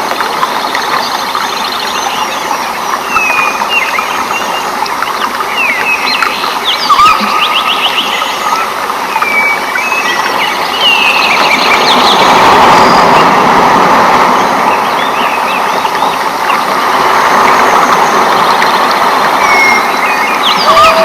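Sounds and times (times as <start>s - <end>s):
rain rushing: 0.0s - 21.0s
birds chirping and whistling: 1.0s - 13.4s, 14.4s - 16.7s, 19.4s - 21.0s.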